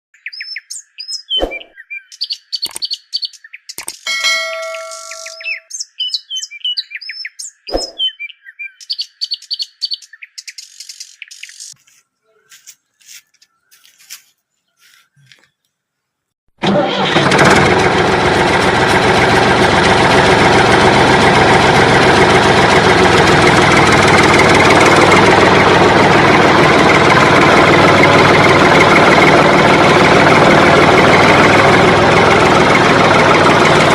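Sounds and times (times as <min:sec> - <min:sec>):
bird-like chirping: 0:00.2 - 0:15.8
scattered clicks: 0:02.6 - 0:02.9, 0:03.7 - 0:04.1
loud engine running: 0:16.6 - 0:33.9.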